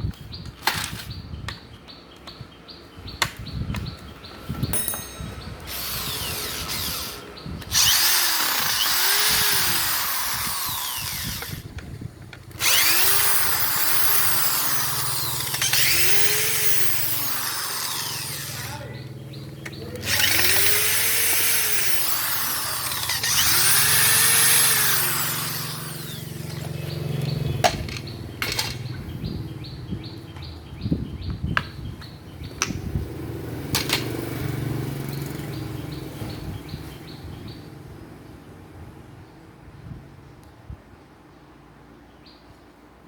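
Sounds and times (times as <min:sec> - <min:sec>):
clicks and knocks of parts: 0:00.4 - 0:01.6, 0:19.6 - 0:26.8, 0:27.6 - 0:29.0, 0:33.7 - 0:34.2
handheld power tool running: 0:04.8 - 0:11.8, 0:12.5 - 0:28.8.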